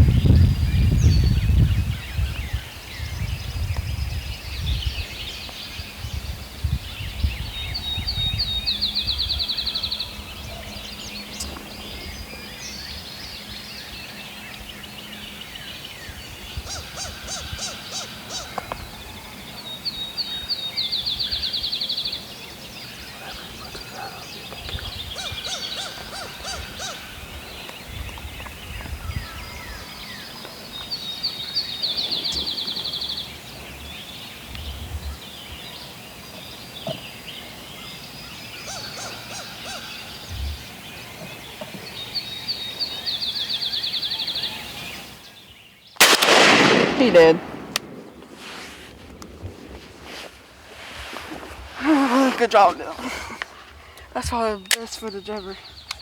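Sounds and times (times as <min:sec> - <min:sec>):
wind rumble on microphone: 0:00.0 - 0:37.9, 0:40.1 - 0:42.4, 0:46.0 - 0:54.5
songbirds singing: 0:00.0 - 0:56.0
sharp evenly spaced bird notes: 0:08.5 - 0:24.6, 0:35.2 - 0:49.3, 0:54.4 - 0:56.0.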